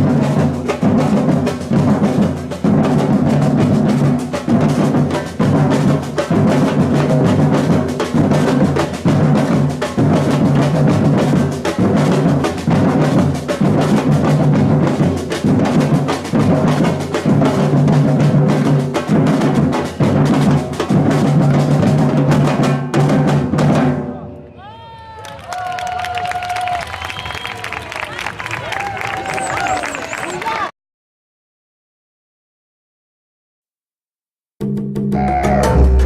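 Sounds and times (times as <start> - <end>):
samba drums playing: 0.0 - 24.1, 34.9 - 36.0
deep bass drum: 34.7 - 36.0.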